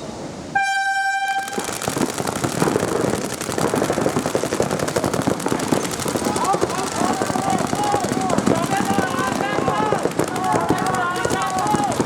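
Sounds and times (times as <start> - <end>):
start horn: 0.6 - 1.6
rapid paintball marker shots: 1.4 - 12.0.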